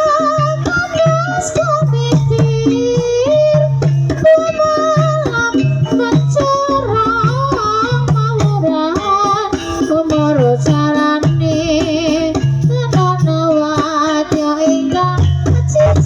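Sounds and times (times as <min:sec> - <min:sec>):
person singing wavering melody: 0:00.0 - 0:16.0
steady drum beat: 0:00.0 - 0:16.0
tuned percussion: 0:00.0 - 0:16.0.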